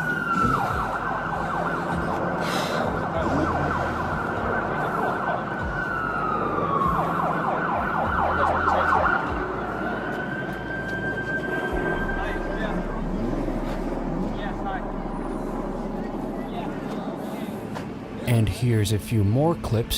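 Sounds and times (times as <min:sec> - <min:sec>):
emergency siren wailing: 0:00.0 - 0:18.0
steady low rumble: 0:11.7 - 0:18.5.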